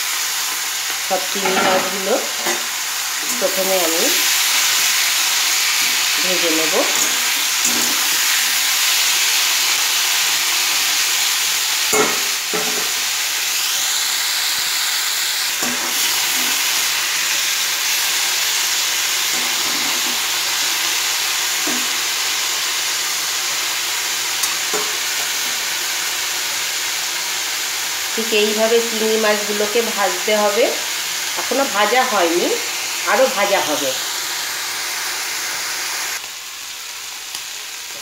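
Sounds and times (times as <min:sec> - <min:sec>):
prawns sizzling in hot oil: 0:00.0 - 0:38.0
metal spatula scraping a pan: 0:01.3 - 0:03.6, 0:05.7 - 0:08.5.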